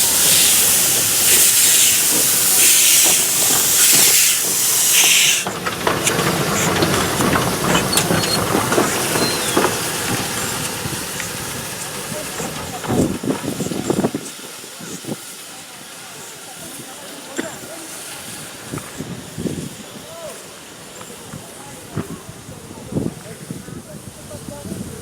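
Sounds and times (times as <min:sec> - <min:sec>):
steam locomotive hissing steam: 0:00.0 - 0:25.0
clicks and clattering: 0:05.4 - 0:11.4.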